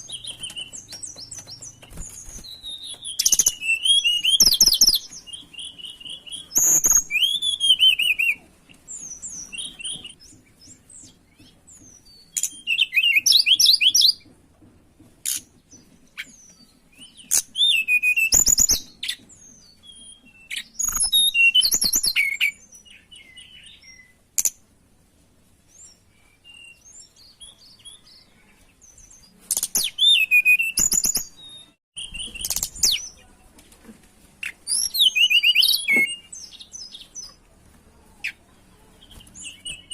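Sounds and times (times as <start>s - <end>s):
bird whistling and warbling: 0.0s - 8.4s, 12.1s - 14.2s, 16.2s - 24.5s, 29.5s - 33.2s, 34.4s - 37.2s.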